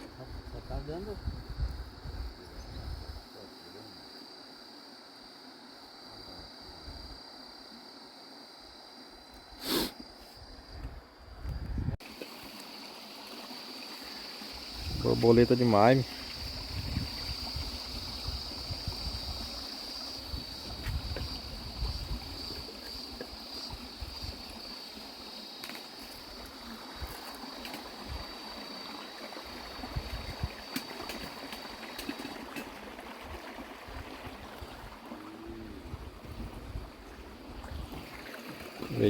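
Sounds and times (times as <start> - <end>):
wind on microphone: 0.0 - 3.2, 10.7 - 12.0, 14.8 - 15.4, 16.3 - 22.7, 29.7 - 30.7, 33.3 - 38.2
water around boat: 0.0 - 4.0, 10.0 - 39.0
high-pitched insect drone: 0.2 - 32.6.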